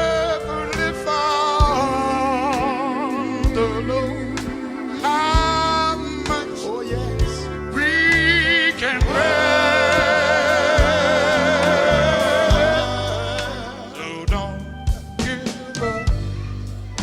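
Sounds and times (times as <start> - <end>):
bass guitar: 0.0 - 17.0
singer holding high vibrato note: 2.2 - 14.2.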